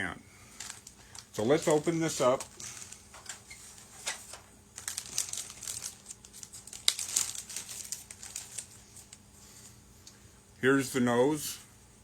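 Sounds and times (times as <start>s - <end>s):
plastic bag crinkling: 0.5s - 9.2s.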